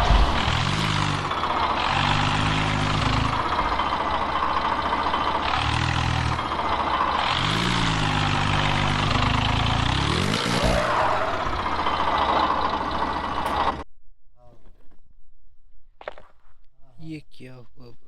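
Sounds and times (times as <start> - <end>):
tractor diesel engines working hard: 0.0 - 13.8.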